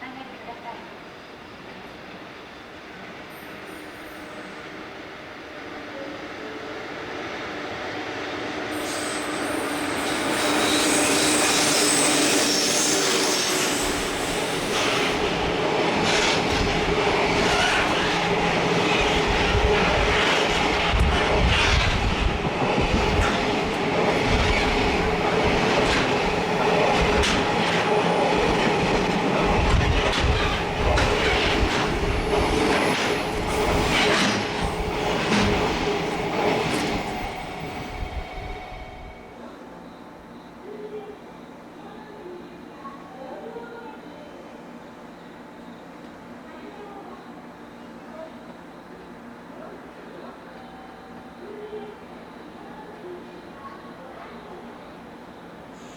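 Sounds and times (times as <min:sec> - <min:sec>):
freight train rolling rumble: 0:00.4 - 0:40.1
train wheels clickety-clack: 0:12.6 - 0:37.9.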